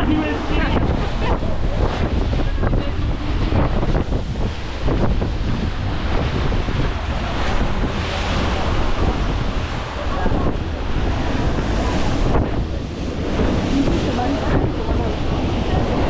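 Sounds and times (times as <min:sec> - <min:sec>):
waves washing against ship hull: 0:00.0 - 0:16.0
wind buffeting microphone: 0:00.0 - 0:16.0.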